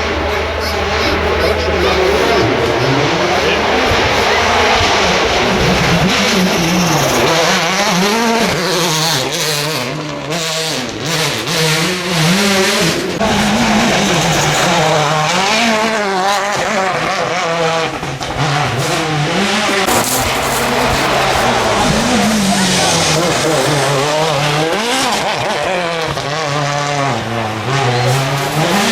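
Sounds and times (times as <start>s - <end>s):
rally car engine revving: 0.0s - 28.9s.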